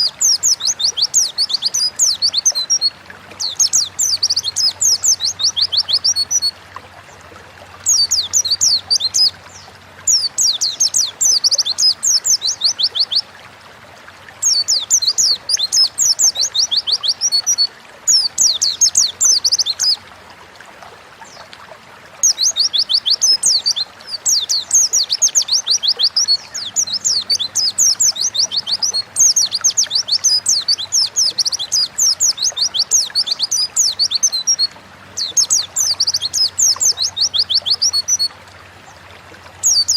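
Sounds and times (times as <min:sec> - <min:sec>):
bird singing high chirps: 0:00.0 - 0:06.5, 0:07.8 - 0:13.2, 0:22.2 - 0:38.3, 0:39.6 - 0:39.9.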